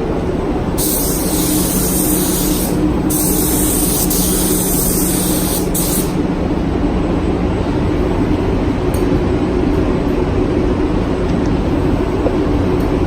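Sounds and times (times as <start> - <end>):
spray gun hissing: 0.8 - 6.2.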